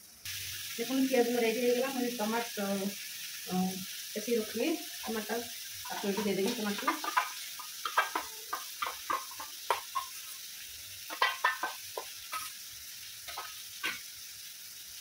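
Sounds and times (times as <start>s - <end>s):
onion paste sizzling in a pan: 0.0s - 15.0s.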